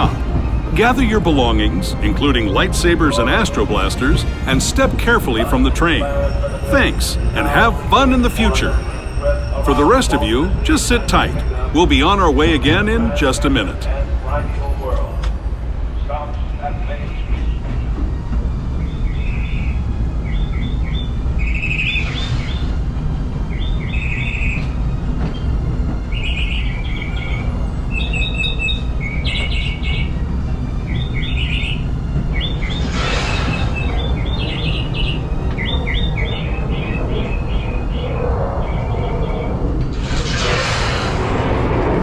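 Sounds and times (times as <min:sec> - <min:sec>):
steam train rumbling on track: 0:00.0 - 0:42.0
birds chirping: 0:26.2 - 0:39.7
steam hiss: 0:39.9 - 0:42.0.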